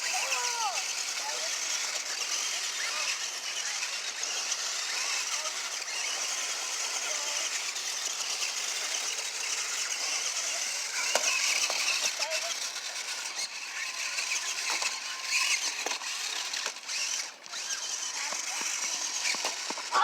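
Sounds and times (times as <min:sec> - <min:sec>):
toy electric motor whirring: 0:00.0 - 0:20.0.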